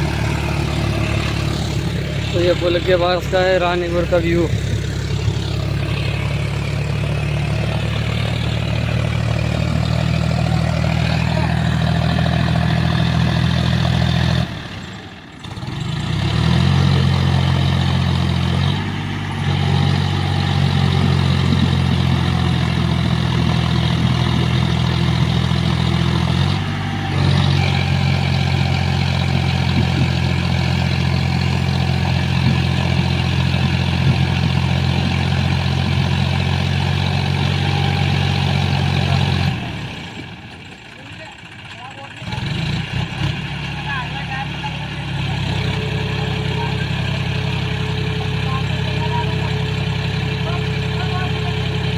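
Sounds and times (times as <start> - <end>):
tractor diesel engine running: 0.0 - 51.9.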